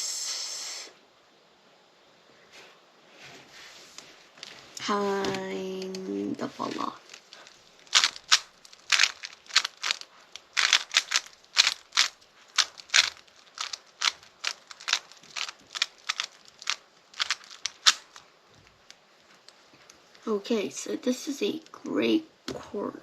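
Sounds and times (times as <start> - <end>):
plastic puzzle cube clicking: 6.7 - 18.2.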